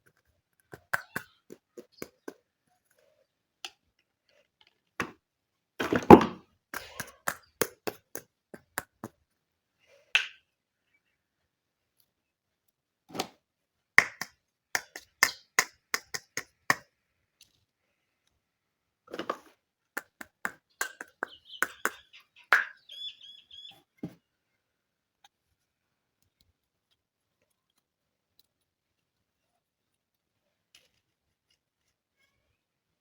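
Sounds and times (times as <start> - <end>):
rapid high chirps: 20.0 - 23.7.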